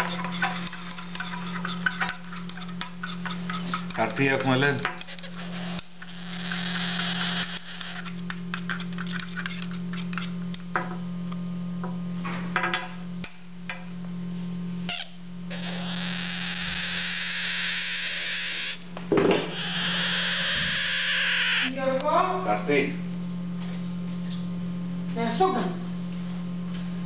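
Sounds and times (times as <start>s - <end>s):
parrot chicks begging: 0.0s - 10.4s, 14.9s - 22.4s.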